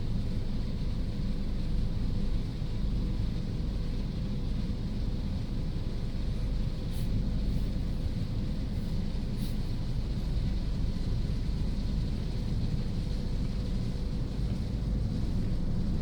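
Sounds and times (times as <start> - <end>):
faint hum: 5.2 - 11.5.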